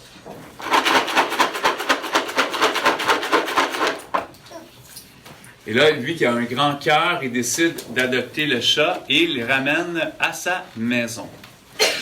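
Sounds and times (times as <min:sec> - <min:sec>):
rapid rhythmic scraping: 0:00.6 - 0:04.1.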